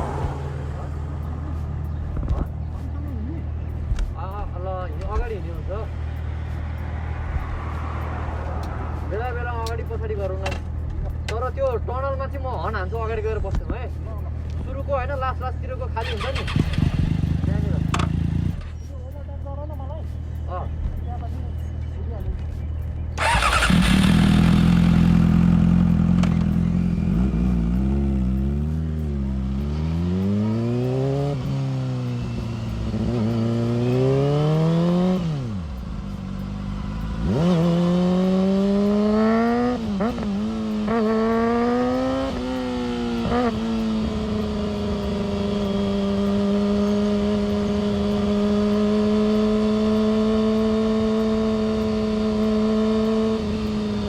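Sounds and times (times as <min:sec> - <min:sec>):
motorcycle engine revving: 0:15.9 - 0:18.8, 0:23.1 - 0:54.0.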